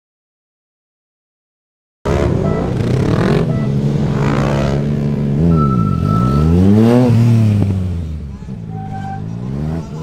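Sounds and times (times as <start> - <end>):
engine revving up and down: 2.1 - 10.0.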